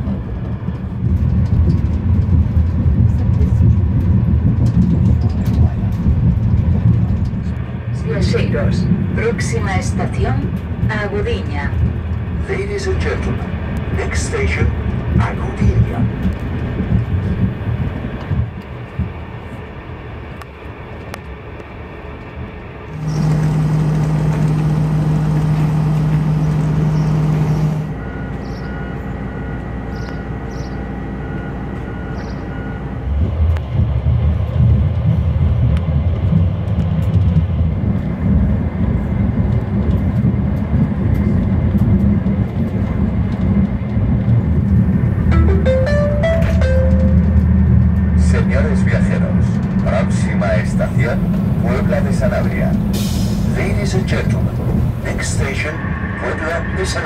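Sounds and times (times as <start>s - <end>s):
train rumbling: 0.0s - 57.0s
loud steady low hum: 22.8s - 34.8s, 44.5s - 55.7s
short high beeps: 45.3s - 47.4s.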